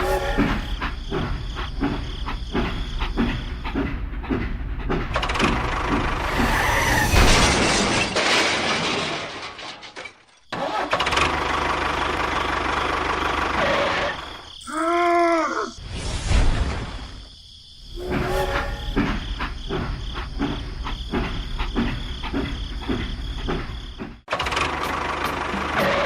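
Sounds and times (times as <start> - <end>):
vehicle engine running: 11.1 - 14.5, 24.4 - 26.0.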